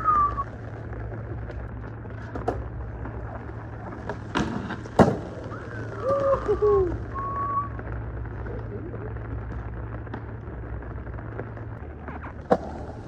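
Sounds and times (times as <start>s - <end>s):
low background noise: 0.0s - 13.0s
skateboard pop and landing slap: 4.0s - 5.5s, 12.5s - 13.0s.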